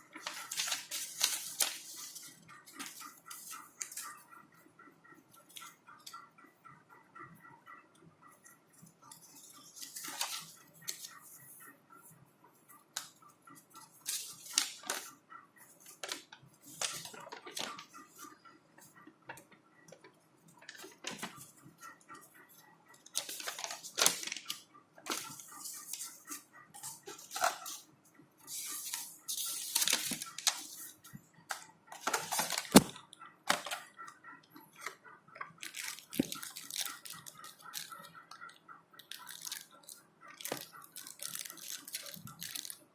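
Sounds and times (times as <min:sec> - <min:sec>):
packaging rustling and crinkling: 0:00.2 - 0:04.1, 0:23.1 - 0:27.8, 0:28.5 - 0:30.9, 0:32.0 - 0:33.8, 0:35.6 - 0:37.9, 0:40.4 - 0:42.8.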